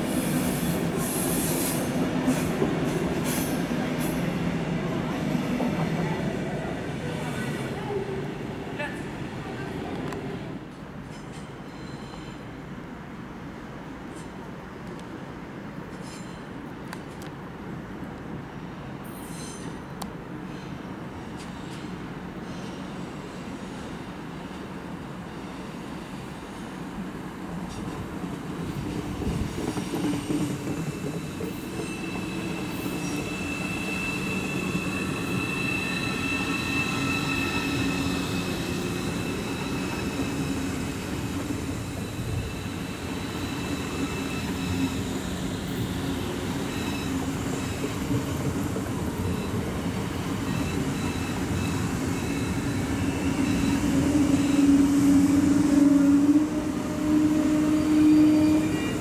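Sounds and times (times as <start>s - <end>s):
train rolling and humming: 0.0s - 59.0s
high wheel squeal: 11.6s - 12.4s, 30.6s - 48.1s, 49.2s - 59.0s.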